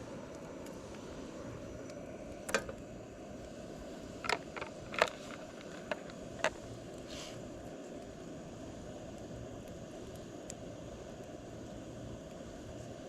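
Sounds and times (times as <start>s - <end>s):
low rushing noise: 0.0s - 13.0s
sharp clicks and knocks: 2.5s - 2.8s, 4.2s - 6.6s.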